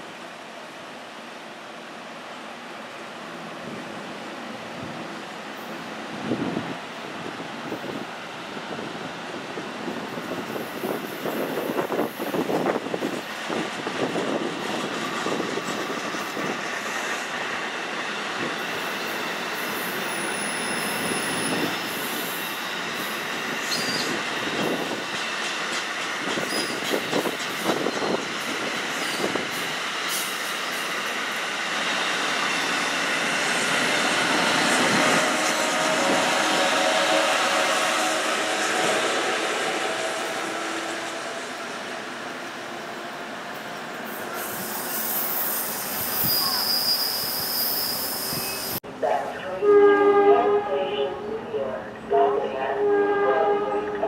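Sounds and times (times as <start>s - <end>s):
train wheels clattering on track: 10.3s - 40.5s
high wheel squealing: 44.3s - 48.8s.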